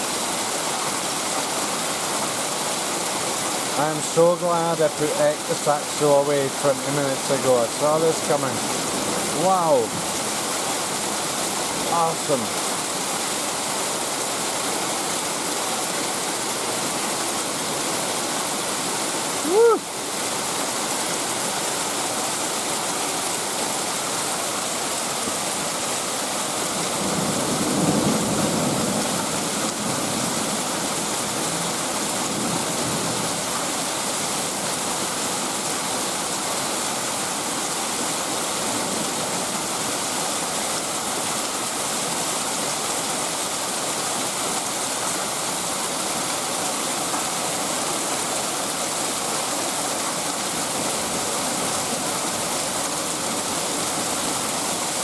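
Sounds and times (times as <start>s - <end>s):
heavy rain pouring: 0.0s - 55.0s
low rumble of thunder: 27.0s - 29.2s.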